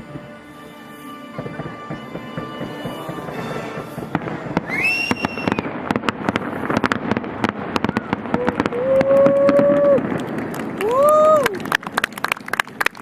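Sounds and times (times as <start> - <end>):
show music: 0.0 - 5.2
fireworks bangs and crackles: 0.0 - 13.0.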